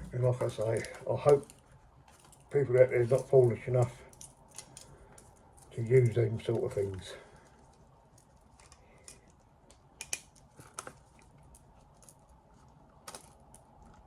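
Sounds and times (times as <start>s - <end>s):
objects being handled clicking: 7.4s - 14.0s.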